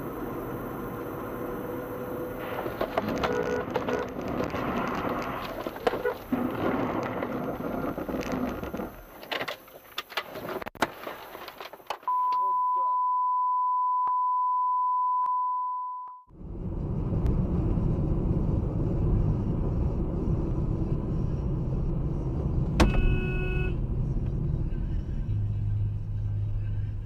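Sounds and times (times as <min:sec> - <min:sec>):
car road and engine noise: 0:00.0 - 0:12.2, 0:16.3 - 0:27.0
car horn blast: 0:03.0 - 0:04.2, 0:22.8 - 0:23.8
high electronic beep tone: 0:12.1 - 0:16.3.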